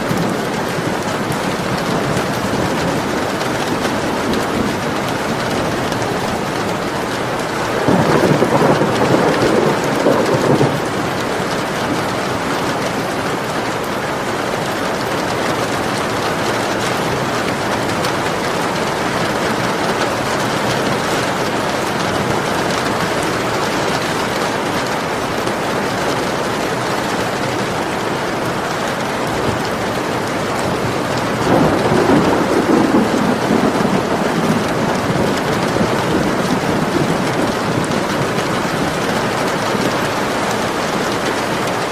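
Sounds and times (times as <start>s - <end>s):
thunder rolling: 0.0s - 12.9s, 29.5s - 41.9s
steady rain: 0.0s - 41.9s.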